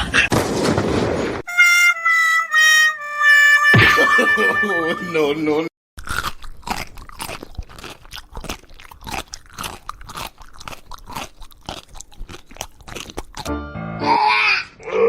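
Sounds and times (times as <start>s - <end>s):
pet crunching food: 6.0s - 13.5s.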